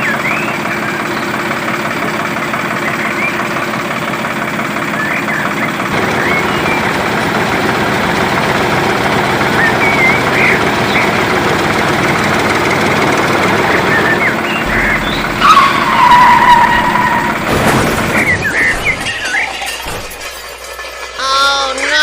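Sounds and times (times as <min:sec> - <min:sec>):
motor running: 0:00.0 - 0:20.4.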